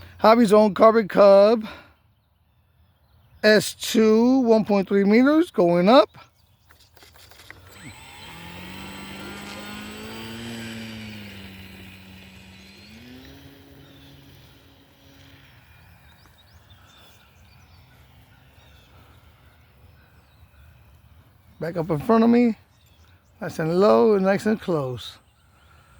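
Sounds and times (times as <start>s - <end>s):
model plane propeller buzzing: 6.6s - 25.9s.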